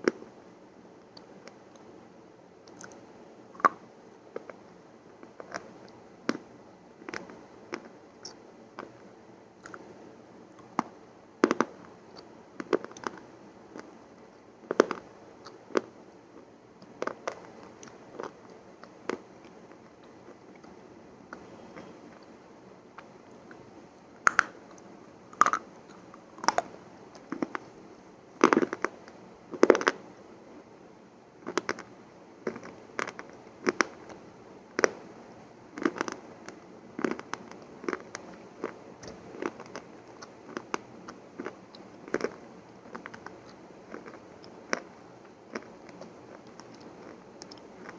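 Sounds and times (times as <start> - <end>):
crunchy chewing: 2.7 - 3.8, 9.6 - 9.9, 23.0 - 27.7, 37.0 - 44.9
crisp crunching cracks: 24.3 - 26.7.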